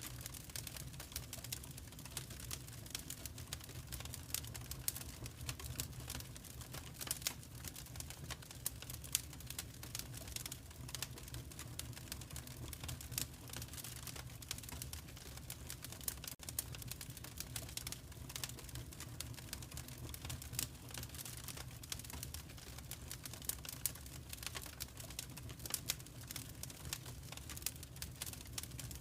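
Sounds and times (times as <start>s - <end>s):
fire crackling and popping: 0.0s - 29.0s
low fire rumble: 0.0s - 29.0s.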